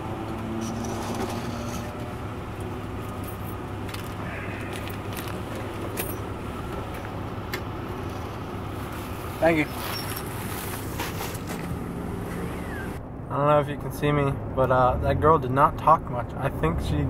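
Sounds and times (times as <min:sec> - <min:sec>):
car engine idling: 0:00.0 - 0:13.1.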